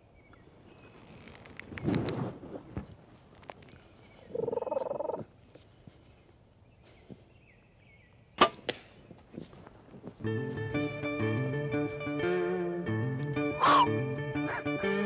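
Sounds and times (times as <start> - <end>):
turkey gobbling: 4.3 - 5.2, 13.6 - 14.6
sharp crack of bow shot: 8.4 - 9.0.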